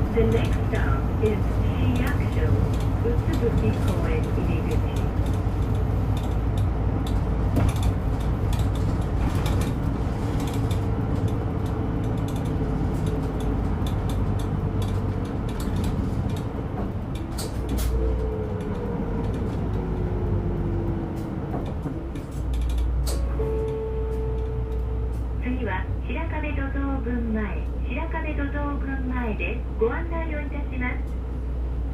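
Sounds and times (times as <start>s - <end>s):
bus engine and road drone: 0.0s - 31.9s
light clicks and rattles: 0.2s - 20.3s, 21.1s - 23.3s.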